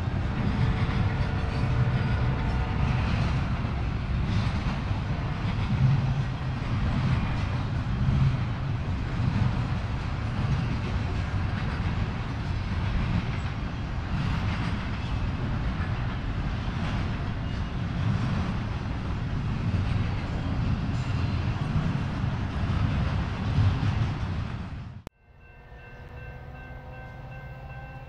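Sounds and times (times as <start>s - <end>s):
freight train wheels rumbling: 0.0s - 28.0s.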